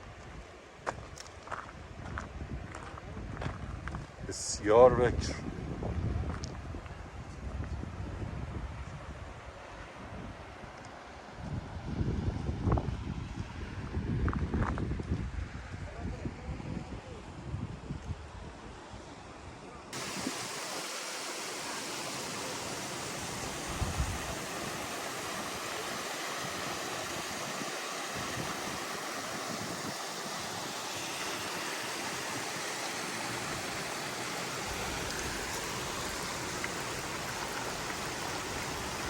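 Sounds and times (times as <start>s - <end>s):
waterfall rushing: 20.0s - 39.0s.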